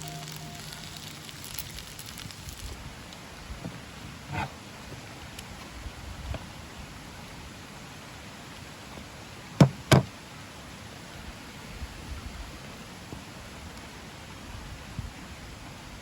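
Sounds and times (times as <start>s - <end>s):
faint steady hiss: 0.0s - 16.0s
sharp knocks: 9.6s - 10.1s.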